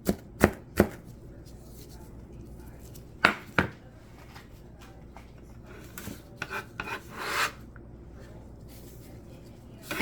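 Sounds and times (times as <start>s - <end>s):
knife scraping on cutting board: 5.7s - 7.7s.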